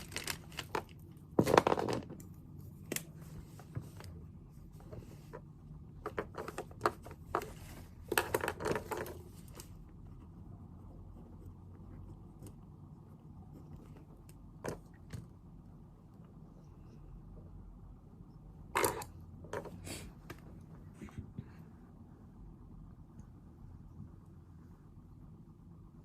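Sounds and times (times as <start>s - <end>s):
paper rustling: 0.0s - 2.0s
low room hum: 0.0s - 26.0s.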